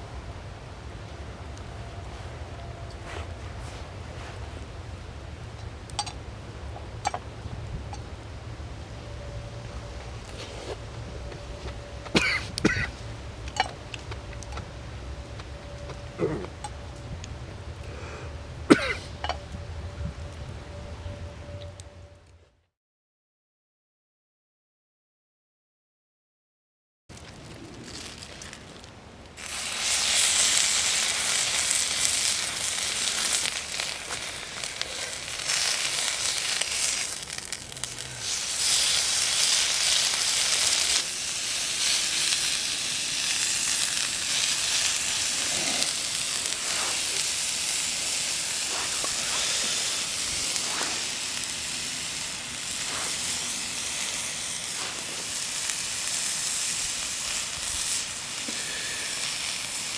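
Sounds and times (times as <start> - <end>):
food sizzling in a pan: 29.4 - 59.9.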